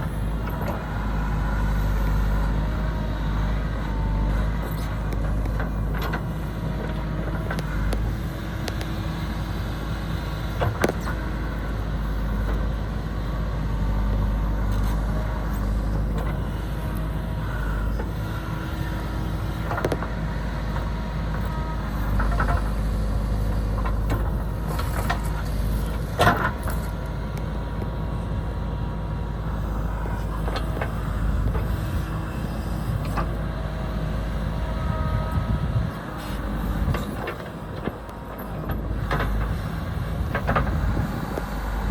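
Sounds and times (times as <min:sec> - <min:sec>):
diesel engine running: 0:00.0 - 0:41.9
wind rumble on microphone: 0:34.6 - 0:41.9.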